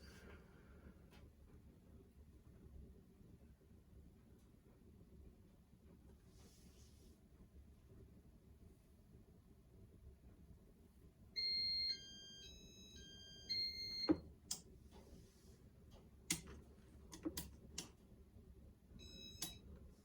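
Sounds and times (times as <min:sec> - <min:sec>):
sharp clicks: 0:16.3 - 0:18.0.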